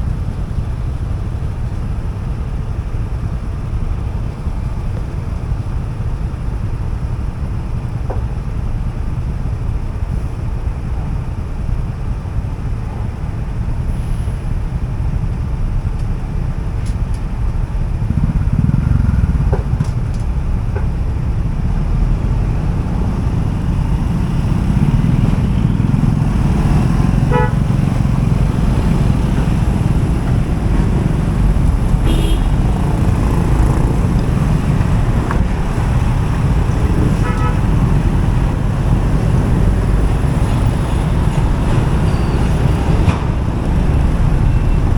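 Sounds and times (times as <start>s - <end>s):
traffic and road noise rumble: 0.0s - 44.9s
vehicle horn honking: 27.1s - 27.8s, 31.0s - 33.5s, 36.6s - 38.2s.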